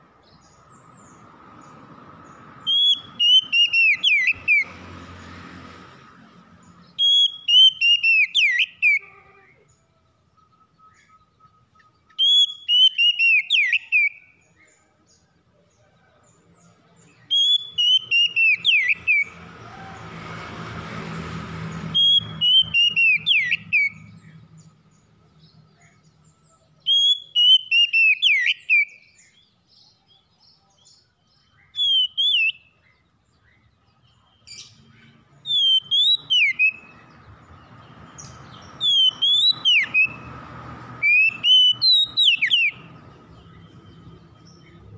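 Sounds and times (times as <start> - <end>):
bird singing whistled phrase: 2.7 - 4.7, 7.0 - 9.0, 10.5 - 14.3, 17.3 - 19.3, 31.6 - 32.8, 35.5 - 37.0, 38.8 - 40.2, 41.0 - 42.8.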